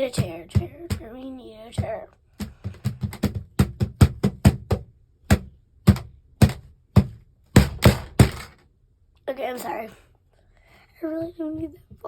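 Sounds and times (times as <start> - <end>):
plastic pieces knocking on surface: 1.8 - 8.6.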